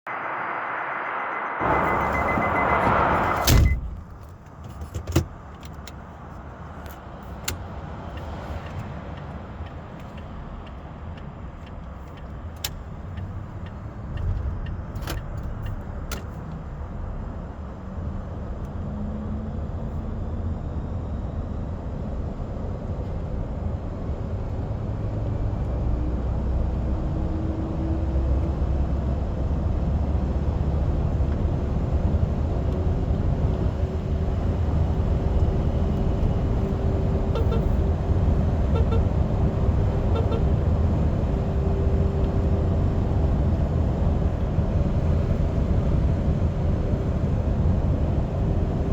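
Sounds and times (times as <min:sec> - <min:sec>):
faint rising whine: 0:00.0 - 0:04.3
road noise: 0:00.0 - 0:48.9
electric truck accelerating: 0:00.1 - 0:03.9.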